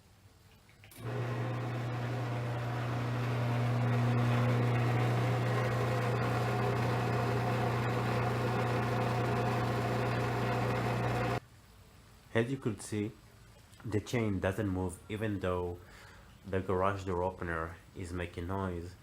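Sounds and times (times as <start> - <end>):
garage door opener motor humming: 1.0 - 11.4.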